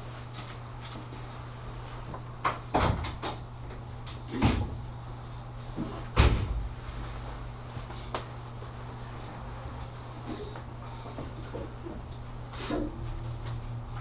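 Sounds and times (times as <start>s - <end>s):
door bang: 4.3s - 4.9s.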